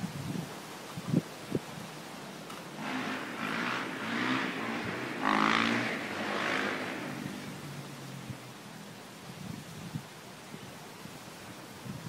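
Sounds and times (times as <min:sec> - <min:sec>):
wind noise: 0:00.0 - 0:12.0
motorcycle exhaust: 0:02.5 - 0:08.6.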